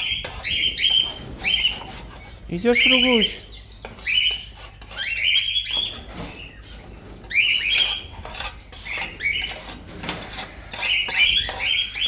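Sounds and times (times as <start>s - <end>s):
parrots squawking: 0.0s - 9.6s, 10.2s - 12.0s.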